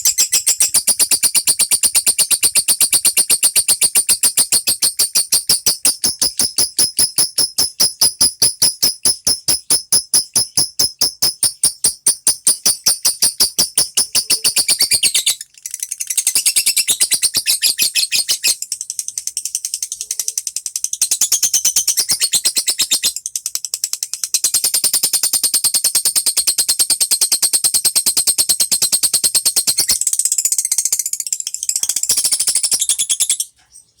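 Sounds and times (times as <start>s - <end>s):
lovebird shrill chirping: 0.0s - 18.6s.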